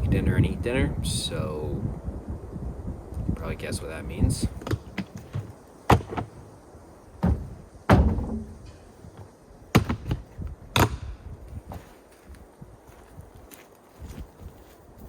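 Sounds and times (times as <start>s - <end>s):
thuds and knocks: 4.6s - 6.5s, 7.2s - 10.2s.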